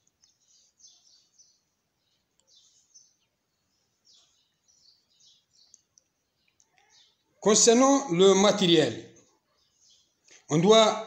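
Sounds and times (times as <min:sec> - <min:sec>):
faint high bird chirps: 0:00.0 - 0:11.0.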